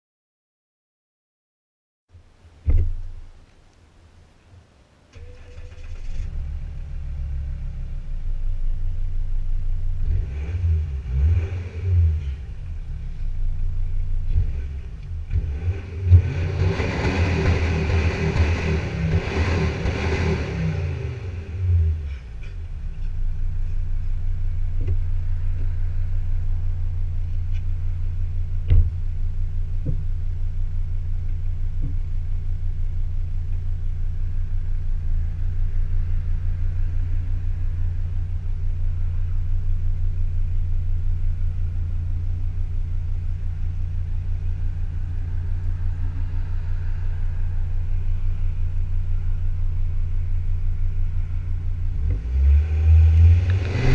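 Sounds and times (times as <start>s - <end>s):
diesel engine idling: 17.3s - 52.0s.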